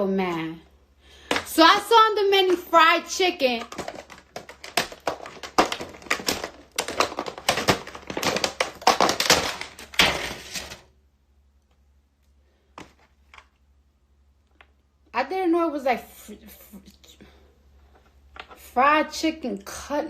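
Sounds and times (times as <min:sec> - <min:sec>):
plastic containers clicking and tapping: 0:01.2 - 0:10.8.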